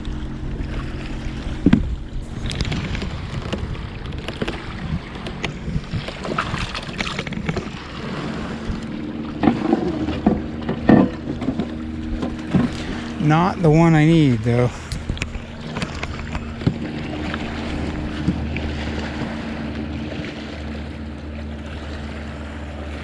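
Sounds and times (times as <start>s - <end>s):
low hum: 0.0s - 23.0s
water noise: 0.0s - 23.0s
wind noise: 0.6s - 8.9s.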